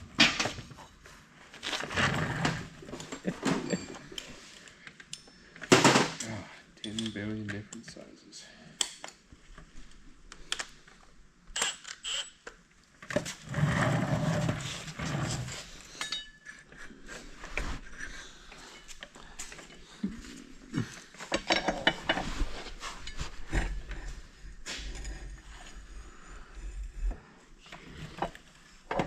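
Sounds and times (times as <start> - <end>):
metal tools clinking and rattling: 3.1 - 4.3, 15.9 - 17.0, 21.2 - 22.3.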